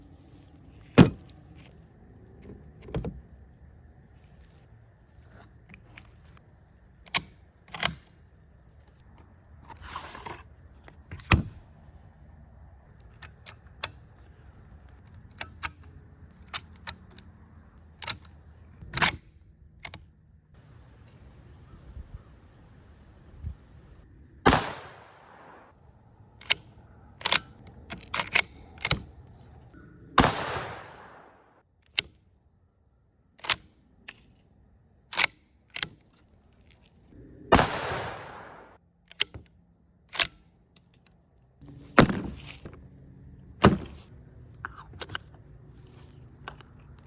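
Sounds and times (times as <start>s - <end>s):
metallic rifle bolt clicks: 7.0s - 8.3s, 14.9s - 17.3s, 18.0s - 20.1s, 26.4s - 29.2s, 33.4s - 34.4s, 35.1s - 36.3s, 37.6s - 41.2s
rifle shots with echo: 24.4s - 25.7s, 30.2s - 31.6s, 37.5s - 38.8s.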